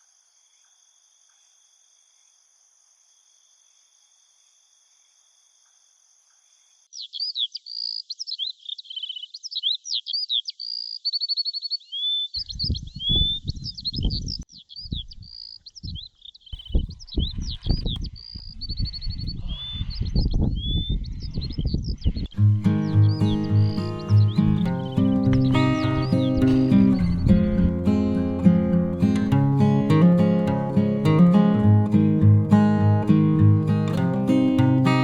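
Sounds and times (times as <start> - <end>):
birds singing: 6.3 - 30.4
low thumps and rumbles: 16.6 - 29.4.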